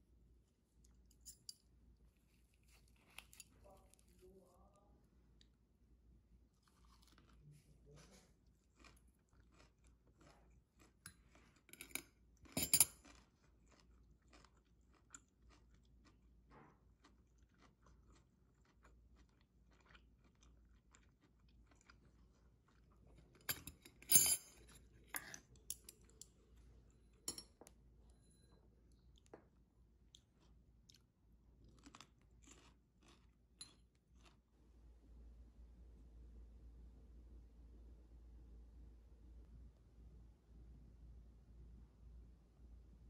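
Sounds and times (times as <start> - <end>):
soft chewing: 0.3 - 34.8.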